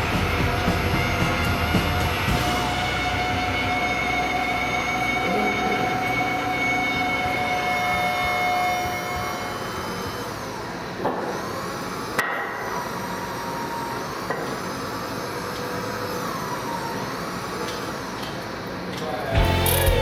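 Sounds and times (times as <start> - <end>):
steady background noise: 0.0 - 20.0
held tones: 19.4 - 20.0.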